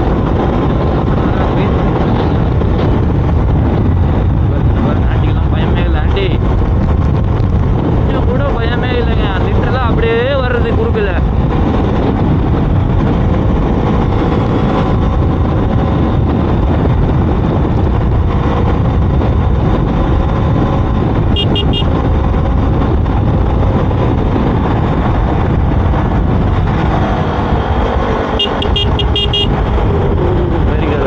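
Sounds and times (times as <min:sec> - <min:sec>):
wind rushing: 0:00.0 - 0:31.0
motorcycle engine running: 0:11.2 - 0:31.0
vehicle horn toots: 0:21.3 - 0:22.0, 0:28.3 - 0:29.6.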